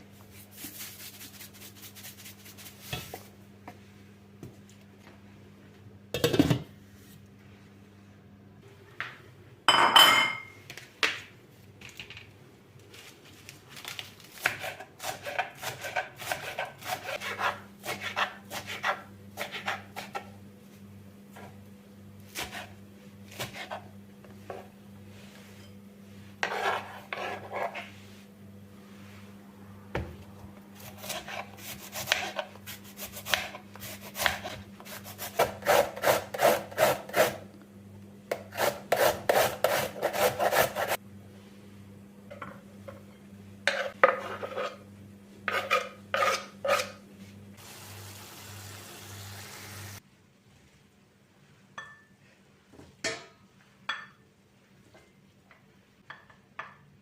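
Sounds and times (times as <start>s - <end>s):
rubbing strokes on hard surface: 0.3s - 3.3s, 25.2s - 28.3s
steady low hum: 37.0s - 47.6s.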